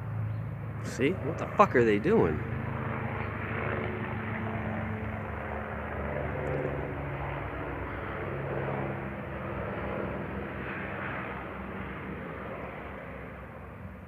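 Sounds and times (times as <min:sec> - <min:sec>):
helicopter flying: 0:00.0 - 0:14.0.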